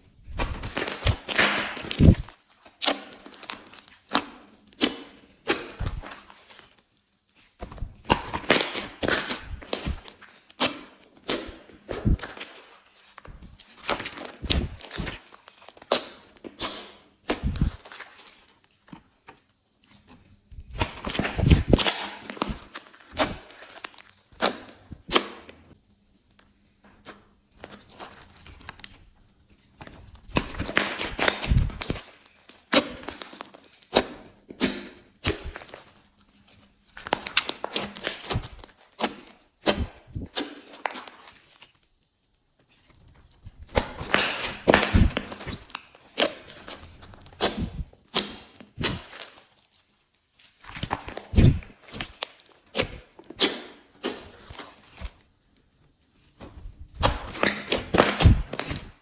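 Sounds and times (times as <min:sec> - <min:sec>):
slime squelching and popping: 0:00.2 - 0:18.5, 0:19.4 - 0:25.8, 0:27.0 - 0:41.9, 0:42.6 - 0:59.0.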